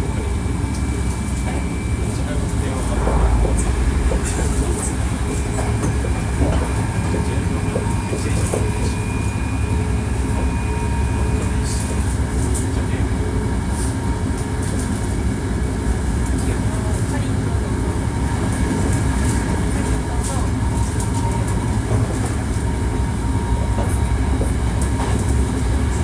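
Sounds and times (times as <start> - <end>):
train wheels rumbling on rails: 0.0 - 26.0
high whine: 1.8 - 8.2.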